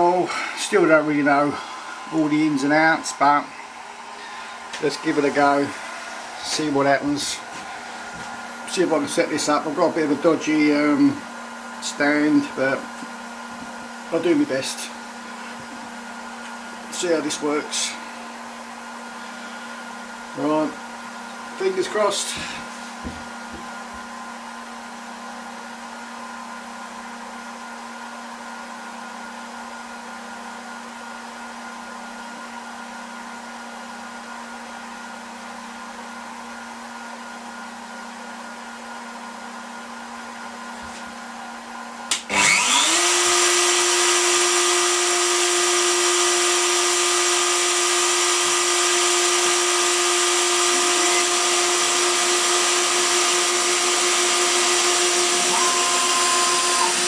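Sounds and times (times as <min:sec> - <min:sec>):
router spindle motor whine: 0:42.1 - 0:57.0.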